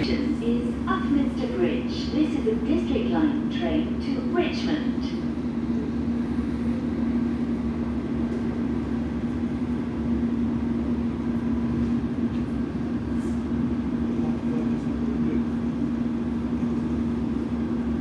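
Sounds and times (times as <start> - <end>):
electrical hum: 0.0 - 11.2
train low rumble: 0.0 - 18.0.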